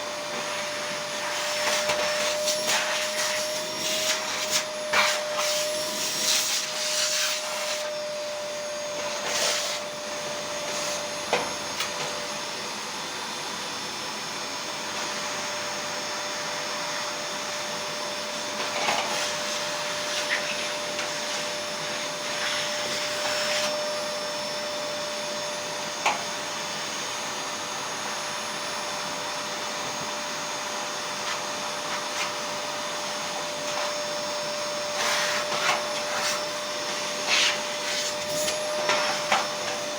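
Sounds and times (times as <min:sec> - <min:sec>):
blower whirring: 0:00.0 - 0:39.9.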